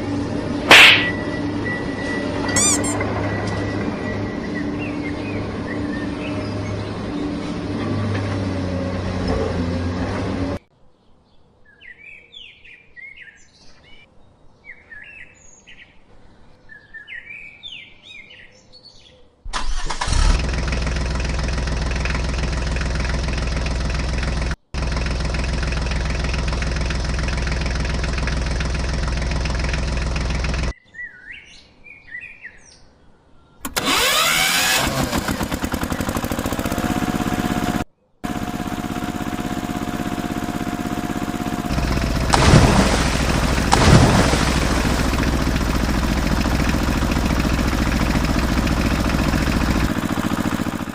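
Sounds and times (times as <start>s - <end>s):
loud engine running: 0.0s - 10.6s, 20.0s - 30.8s, 33.6s - 50.9s
birds chirping: 0.4s - 8.1s.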